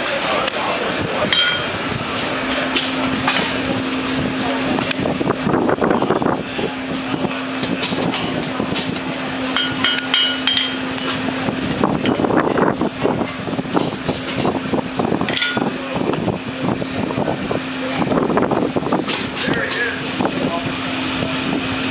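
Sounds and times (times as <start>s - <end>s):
steady low hum: 0.0s - 21.9s
hammer striking metal on anvil: 1.3s - 1.8s, 9.5s - 11.1s, 15.3s - 15.7s.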